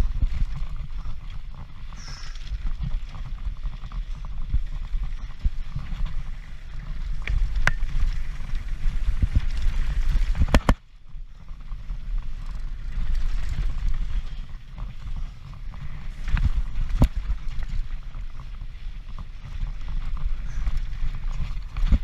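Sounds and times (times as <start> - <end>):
bike rattling over rough ground: 0.0 - 22.0.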